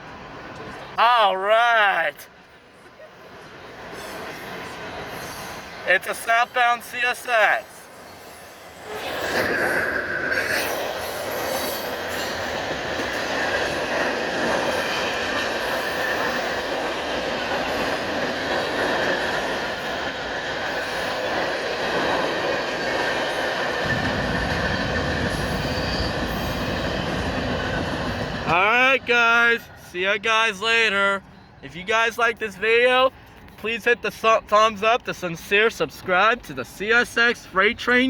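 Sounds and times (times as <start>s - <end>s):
train wheels rumbling on rails: 2.8s - 29.9s
high wheel squeal: 3.9s - 6.8s, 7.7s - 12.6s, 24.7s - 27.2s.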